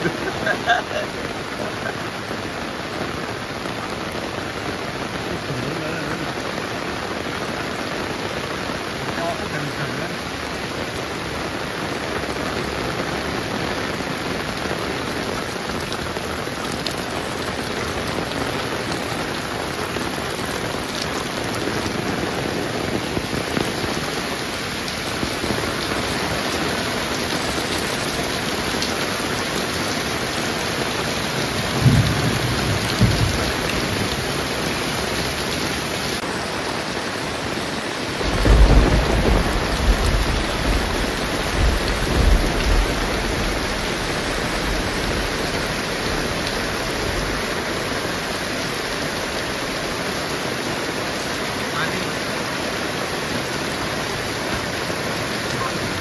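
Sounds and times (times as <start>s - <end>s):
heavy rain: 0.0s - 56.0s
thunder rumbling: 31.0s - 35.4s, 38.1s - 47.9s.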